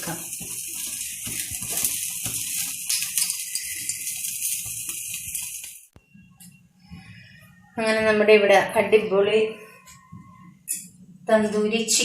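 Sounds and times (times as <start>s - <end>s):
chicken sizzling with crackles: 0.0s - 6.0s.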